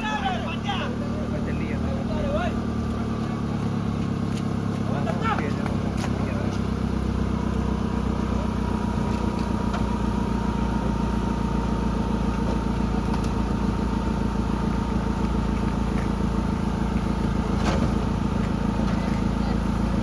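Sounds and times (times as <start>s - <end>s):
vehicle engine running steadily: 0.0s - 20.0s.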